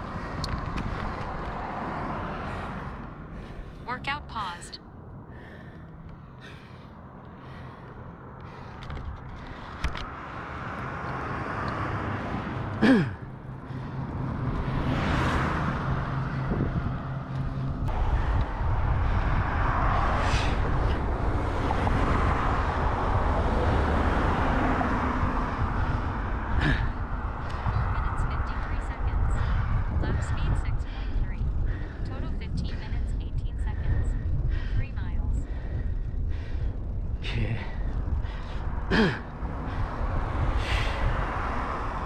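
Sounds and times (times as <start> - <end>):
steady road traffic: 0.0 - 42.0
vehicle passing by: 0.0 - 42.0.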